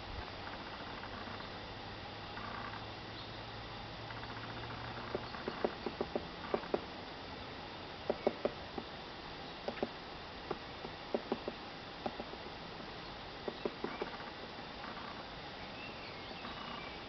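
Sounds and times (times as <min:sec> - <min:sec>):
woodpecker pecking at wood: 0:04.1 - 0:06.9, 0:08.0 - 0:09.0, 0:09.6 - 0:15.2.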